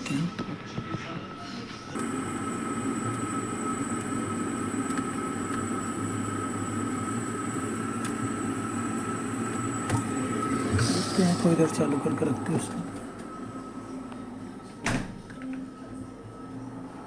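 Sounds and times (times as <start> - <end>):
high steady whine: 2.0 - 13.8
refrigerator compressor humming: 2.0 - 15.3.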